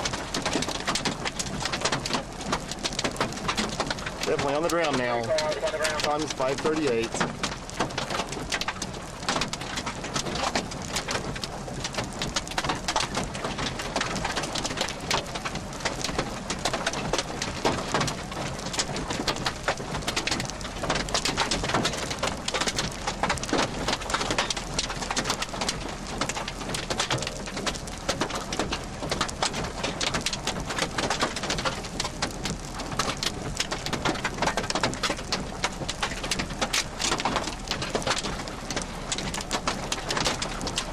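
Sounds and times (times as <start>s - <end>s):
hard rain falling: 0.0s - 40.9s.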